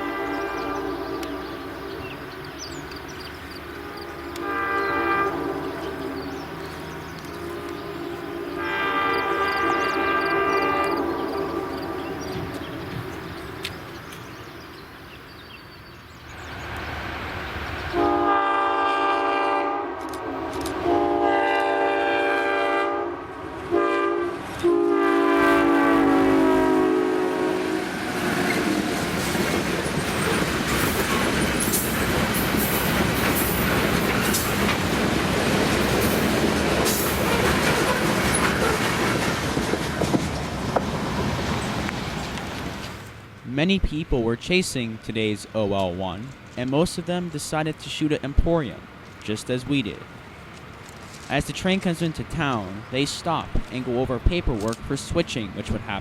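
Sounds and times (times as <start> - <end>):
locomotive air horn blasts: 0.0 - 1.6, 3.9 - 6.4, 7.4 - 12.1, 17.9 - 29.0
locomotive engine rumble: 0.0 - 15.3
train wheels clattering: 28.1 - 43.0.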